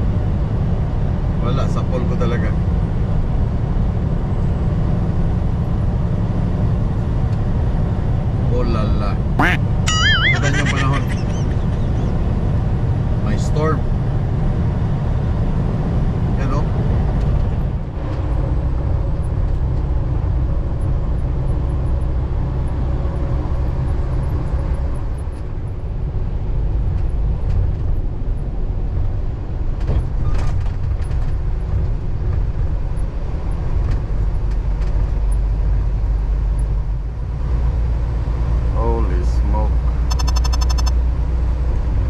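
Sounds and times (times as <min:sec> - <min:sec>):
truck engine and road noise: 0:00.0 - 0:42.0
brief clicks: 0:40.1 - 0:41.0.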